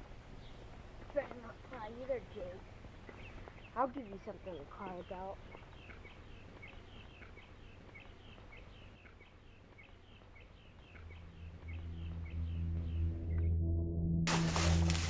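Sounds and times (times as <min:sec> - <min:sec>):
low outdoor rumble: 0:00.0 - 0:15.0
small birds chirping: 0:00.1 - 0:13.5
low music drone: 0:10.6 - 0:15.0.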